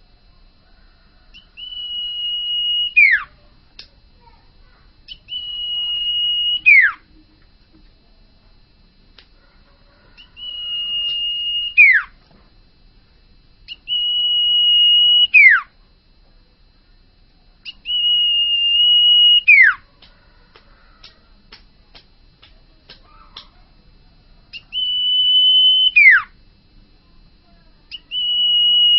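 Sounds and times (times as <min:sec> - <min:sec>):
bird whistling: 0:01.3 - 0:03.3, 0:05.1 - 0:07.0, 0:10.2 - 0:12.1, 0:13.7 - 0:15.7, 0:17.6 - 0:19.8, 0:24.5 - 0:26.3, 0:27.9 - 0:28.9.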